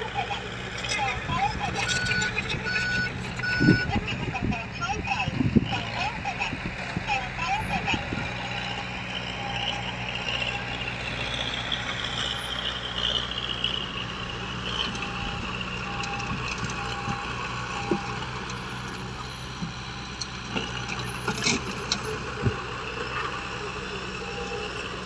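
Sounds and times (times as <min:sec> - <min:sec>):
construction machinery engines running: 0:00.0 - 0:25.0
reversing alarm beeping: 0:00.2 - 0:04.4, 0:07.8 - 0:11.0, 0:14.7 - 0:21.2, 0:23.0 - 0:25.0.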